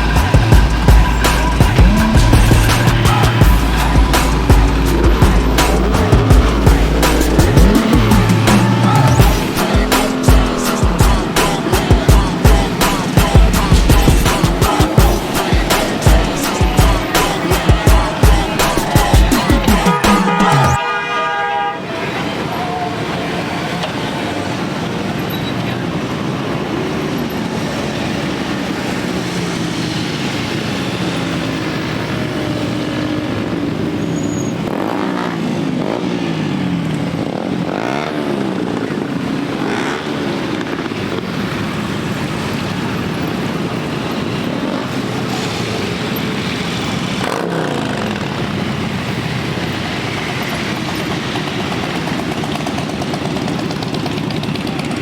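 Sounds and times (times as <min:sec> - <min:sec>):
motorcycles riding past: 0:23.3 - 0:55.0.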